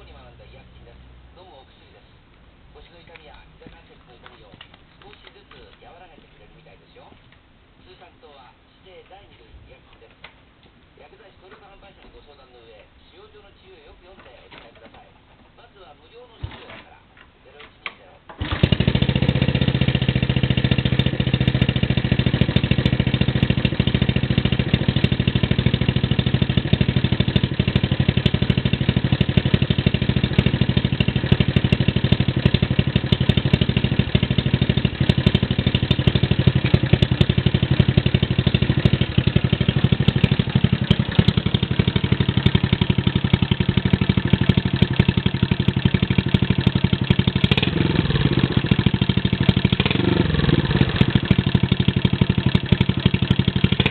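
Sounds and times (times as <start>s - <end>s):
motorcycle engine idling: 18.4s - 53.9s.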